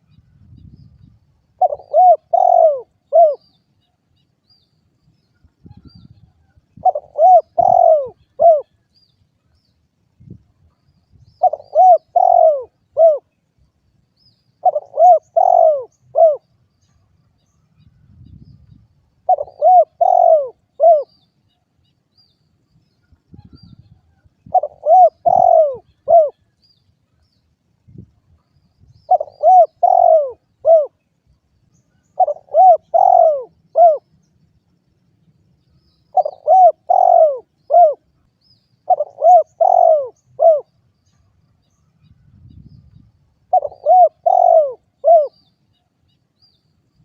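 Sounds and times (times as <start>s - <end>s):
dove cooing: 1.6s - 3.5s, 6.8s - 8.8s, 11.4s - 13.3s, 14.6s - 16.5s, 19.2s - 21.2s, 24.4s - 26.5s, 29.1s - 31.0s, 32.2s - 34.1s, 36.1s - 38.1s, 38.8s - 40.8s, 43.5s - 45.5s.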